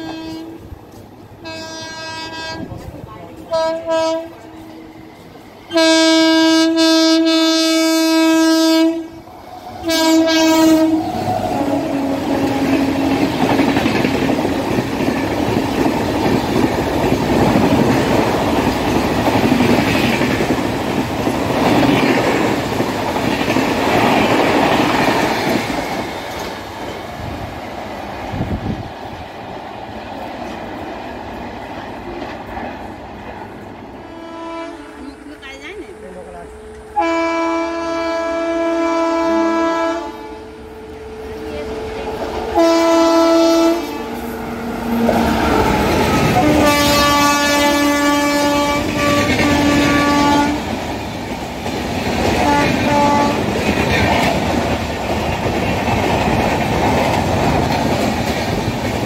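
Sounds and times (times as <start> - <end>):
locomotive horn: 0.0 - 0.7, 1.4 - 2.8, 3.5 - 4.9, 5.7 - 9.2, 9.8 - 13.5, 34.0 - 35.2, 36.7 - 41.5, 42.5 - 50.8, 52.4 - 53.5
train rushing past: 0.0 - 59.0.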